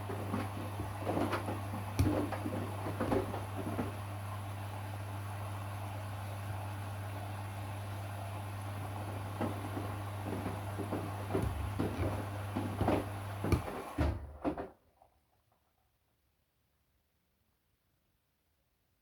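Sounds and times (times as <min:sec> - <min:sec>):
washing machine humming: 0:00.0 - 0:14.8.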